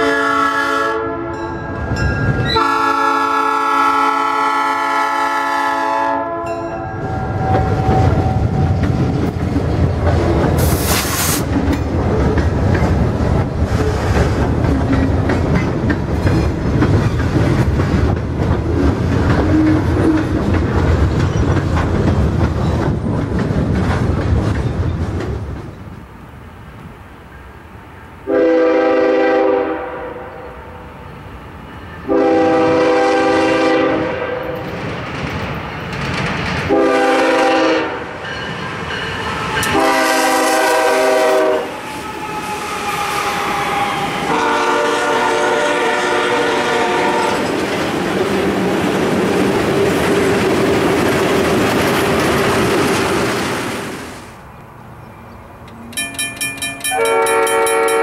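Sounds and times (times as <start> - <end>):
train air horn: 0.0 - 1.5, 2.5 - 8.7, 28.3 - 30.9, 32.0 - 34.6, 36.7 - 38.2, 39.2 - 47.4, 56.9 - 58.0
diesel locomotive rumbling past: 0.0 - 58.0
wheels clattering over rail joints: 11.4 - 26.0.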